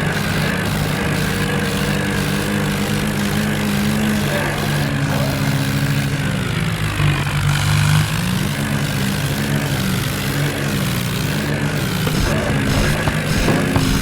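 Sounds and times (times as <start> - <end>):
tractor engine running: 11.0 - 14.0.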